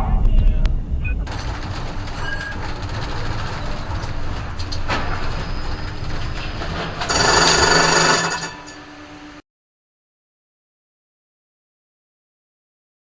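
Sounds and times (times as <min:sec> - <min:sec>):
loud harsh ringing sound: 0:00.0 - 0:09.4
road and engine noise: 0:00.0 - 0:09.4
rattling clicks: 0:01.3 - 0:08.8.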